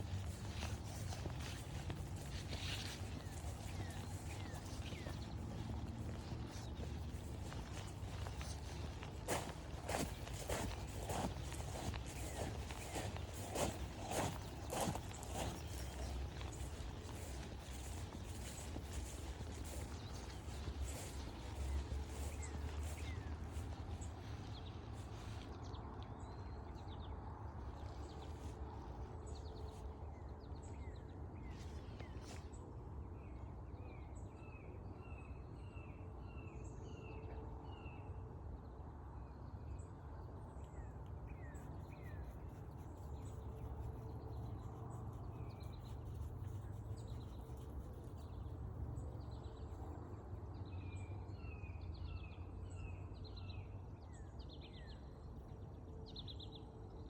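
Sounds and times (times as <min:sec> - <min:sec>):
small birds chirping: 0:00.0 - 0:26.3, 0:40.6 - 0:55.3
low outdoor rumble: 0:00.0 - 0:33.9.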